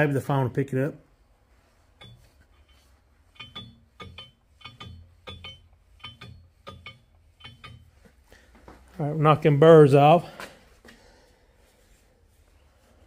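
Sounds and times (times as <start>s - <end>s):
metal scraping ticks: 1.9s - 8.4s.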